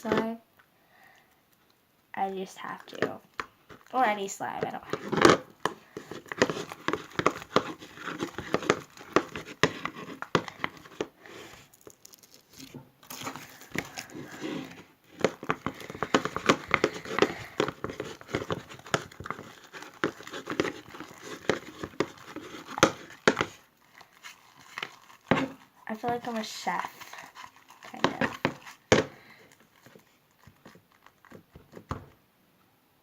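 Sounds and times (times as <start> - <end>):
wet slime squelching: 2.2 - 31.9.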